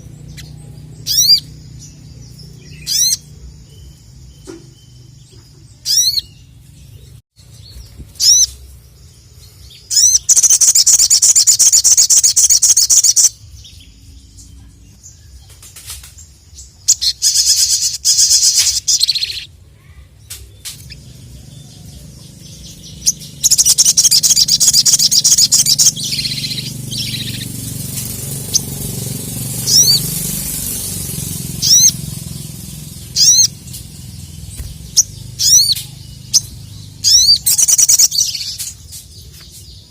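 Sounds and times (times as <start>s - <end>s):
bird chattering: 0.0s - 3.6s, 9.7s - 13.4s, 16.8s - 19.5s, 20.4s - 39.5s
bird whistled notes: 29.6s - 30.1s, 31.5s - 32.1s, 33.1s - 33.6s.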